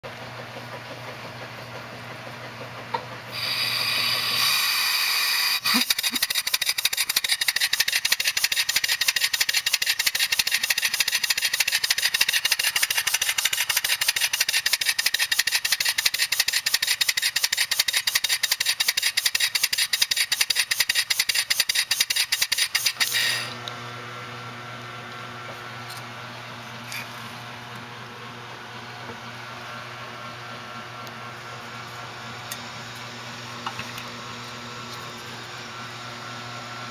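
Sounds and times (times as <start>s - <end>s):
air hissing: 3.3s - 6.3s.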